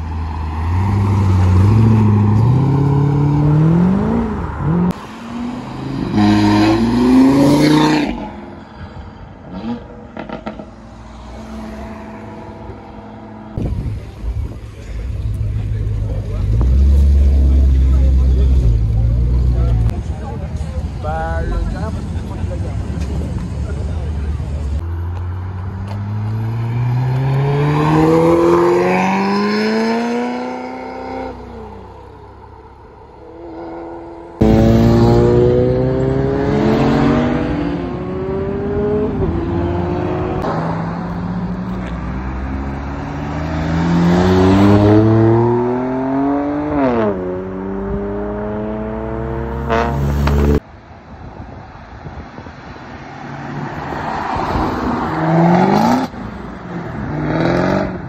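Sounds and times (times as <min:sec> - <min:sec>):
performance cars accelerating hard: 0:25.8 - 0:31.5, 0:33.4 - 0:50.6, 0:53.5 - 0:58.0.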